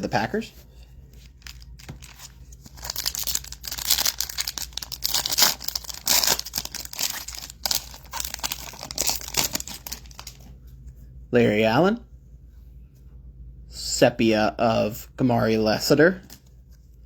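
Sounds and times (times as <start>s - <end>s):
foil wrapper tearing and crumpling: 1.3s - 10.4s.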